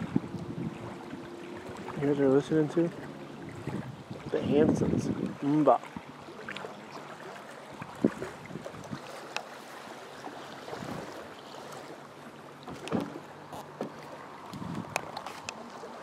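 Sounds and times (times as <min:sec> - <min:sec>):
wind rushing over microphone: 0:00.0 - 0:02.2, 0:03.5 - 0:05.6, 0:14.5 - 0:15.1.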